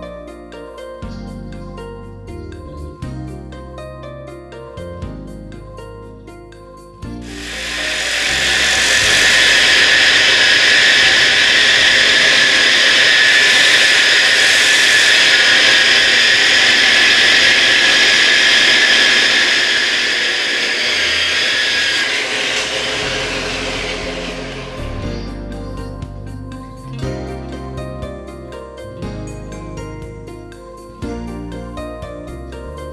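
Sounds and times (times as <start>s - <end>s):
background music: 0.0s - 14.5s, 22.6s - 32.9s
grinder polishing stone: 7.2s - 25.4s.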